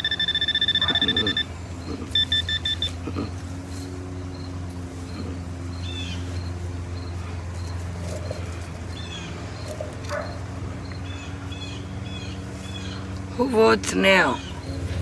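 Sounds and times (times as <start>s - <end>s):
faint repeating high tone: 0.0s - 3.0s
small bird chirping: 0.0s - 7.8s
steady low hum: 0.0s - 15.0s.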